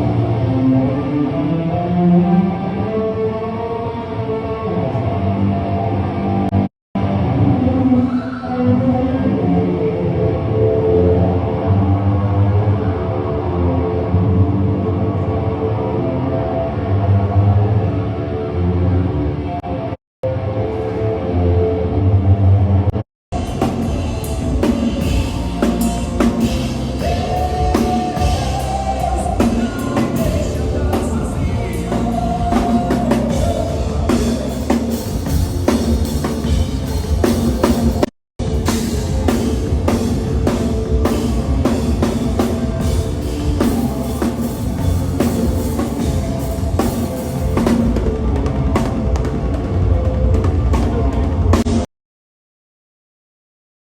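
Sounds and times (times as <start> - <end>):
drum kit: 23.3 - 51.9
rock band playing live: 23.4 - 51.8.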